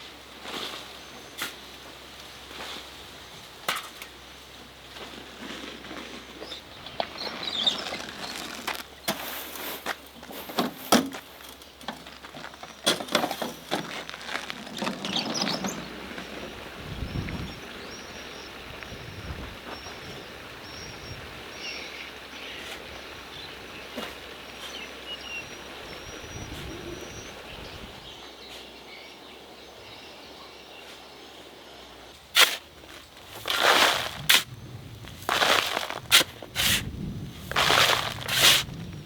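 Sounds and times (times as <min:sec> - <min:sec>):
bird-like chirps: 0:06.4 - 0:08.6.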